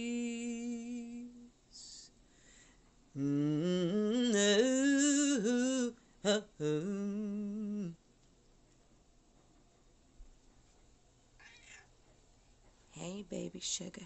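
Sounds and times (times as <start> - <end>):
person humming a melody: 0.0 - 2.1, 3.2 - 8.0.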